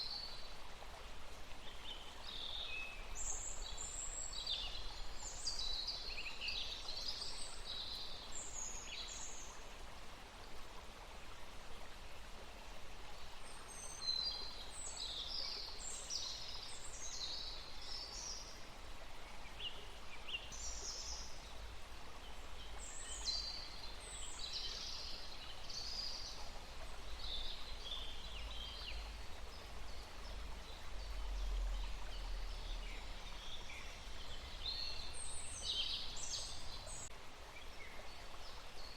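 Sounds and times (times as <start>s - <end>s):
faint hiss: 0.0s - 38.9s.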